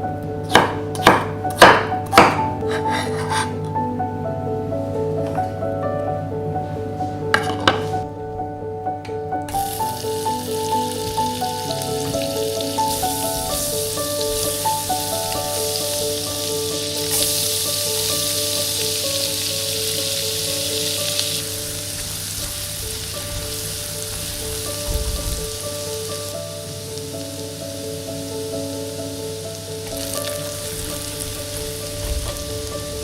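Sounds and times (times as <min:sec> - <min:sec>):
light background music: 0:00.0 - 0:33.0
food sizzling in oil: 0:09.5 - 0:33.0.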